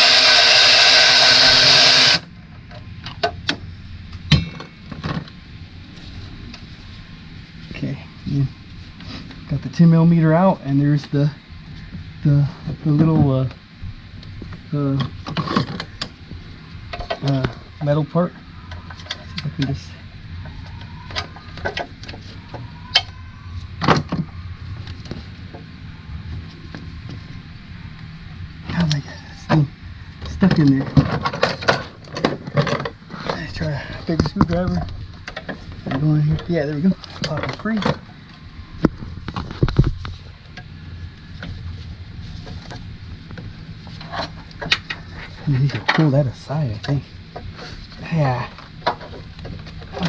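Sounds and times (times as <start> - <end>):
cordless power tool spinning: 0.0 - 2.3
low hum: 0.0 - 50.0.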